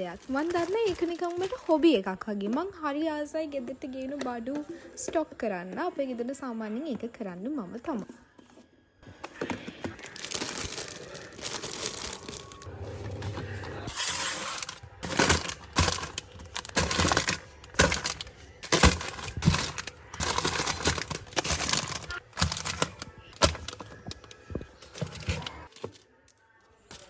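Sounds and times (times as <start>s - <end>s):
bags rustling: 0.0s - 2.0s, 9.0s - 26.1s, 26.8s - 27.0s
items clattering as set down: 0.2s - 1.8s, 9.1s - 26.0s.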